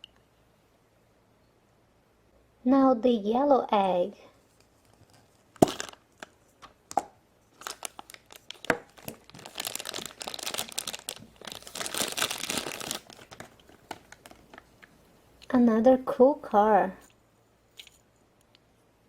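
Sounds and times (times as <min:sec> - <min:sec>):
wrapping crinkling and tearing: 0:04.6 - 0:06.7, 0:07.5 - 0:14.9.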